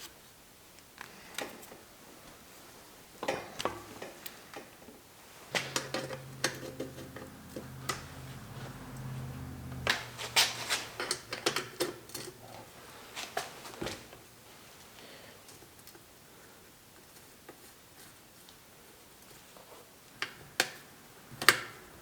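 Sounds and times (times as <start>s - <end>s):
low steady hum: 5.2s - 13.0s.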